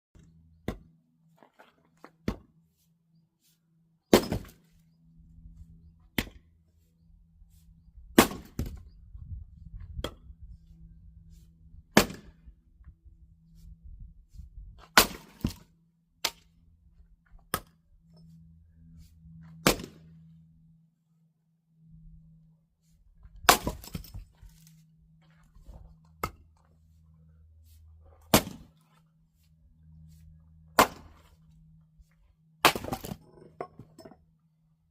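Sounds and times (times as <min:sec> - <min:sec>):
axe chopping wood: 0:02.2 - 0:02.5, 0:04.1 - 0:04.7, 0:06.1 - 0:06.4, 0:08.1 - 0:08.8, 0:11.9 - 0:12.4, 0:14.8 - 0:16.5, 0:19.6 - 0:20.1, 0:23.4 - 0:24.2, 0:26.2 - 0:26.4, 0:28.3 - 0:28.8, 0:30.7 - 0:31.3, 0:32.6 - 0:33.2.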